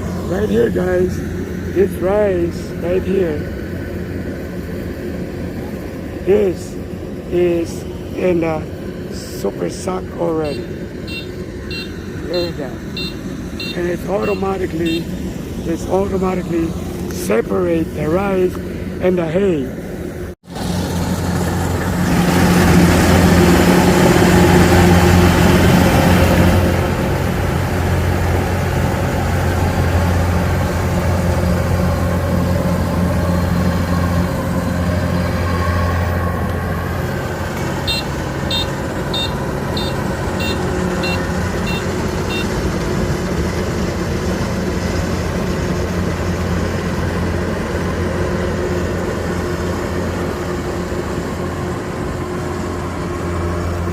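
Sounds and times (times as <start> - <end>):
combine harvester running: 0.0 - 53.9
short high beeps: 10.5 - 15.1, 37.9 - 42.5.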